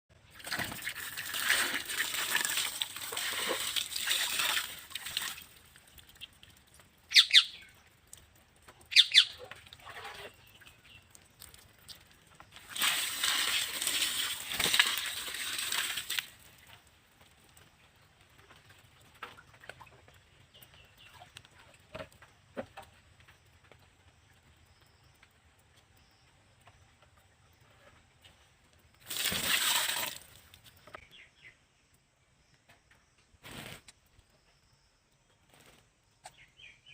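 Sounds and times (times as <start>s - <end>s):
parrot splashing in water: 0.4s - 16.6s, 29.0s - 30.5s
parrot calls: 7.1s - 7.6s, 8.9s - 9.4s.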